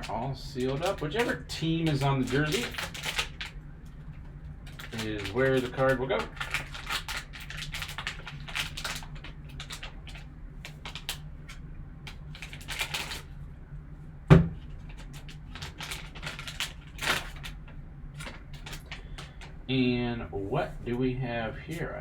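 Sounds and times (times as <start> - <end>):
packaging rustles and clicks: 0.0 - 3.6, 4.6 - 13.3, 14.8 - 19.6
steady low hum: 0.0 - 22.0
loud knock: 14.3 - 14.6.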